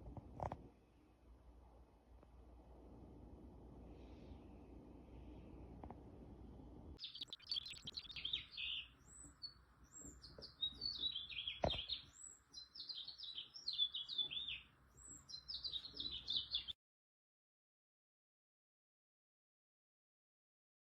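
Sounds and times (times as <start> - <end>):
small songbirds chirping: 7.0 - 16.8.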